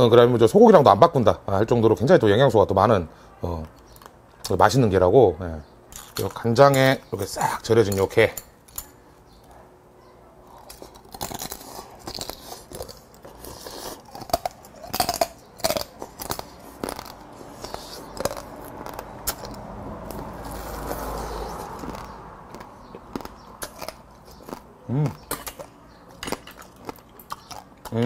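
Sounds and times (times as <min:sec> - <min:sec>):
crab shell crunching while chewing: 0:10.5 - 0:28.0.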